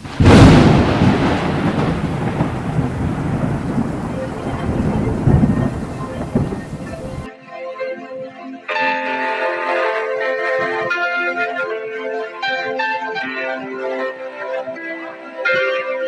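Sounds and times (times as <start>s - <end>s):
loud thunderclap: 0.0s - 7.3s
rolling thunder rumble: 0.0s - 7.3s
steady rain: 0.0s - 7.3s.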